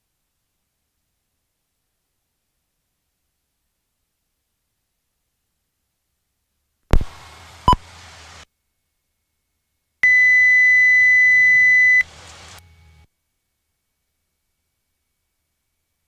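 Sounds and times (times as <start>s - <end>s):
steady high-pitched beep: 10.0s - 12.1s.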